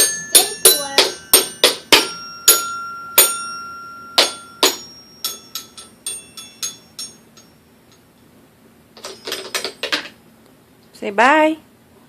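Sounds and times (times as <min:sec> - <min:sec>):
toy xylophone notes: 0:00.0 - 0:07.2.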